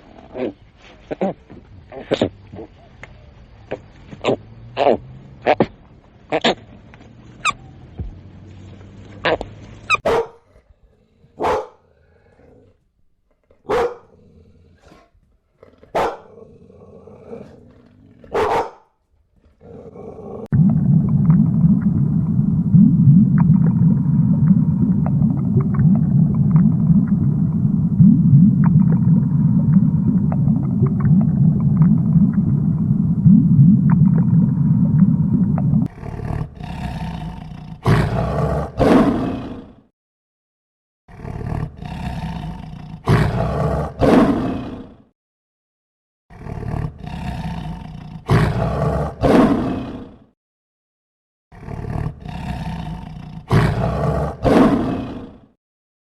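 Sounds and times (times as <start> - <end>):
big cat growling low: 10.5 - 12.8, 13.4 - 18.4, 19.4 - 39.9, 41.1 - 45.1, 46.3 - 50.4, 51.5 - 55.6
big cat roaring: 10.5 - 12.8, 13.5 - 18.4, 19.4 - 39.9, 41.1 - 45.1, 46.3 - 50.3, 51.5 - 55.6.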